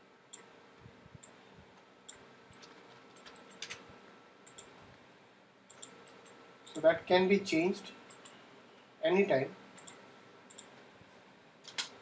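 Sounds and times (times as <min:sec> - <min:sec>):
low steady hiss: 0:00.0 - 0:12.0
faint computer mouse clicks: 0:05.7 - 0:06.8.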